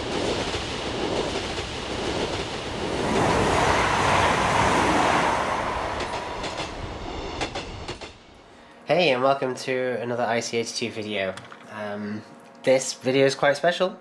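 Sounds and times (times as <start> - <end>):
train passing by: 0.0 - 10.8.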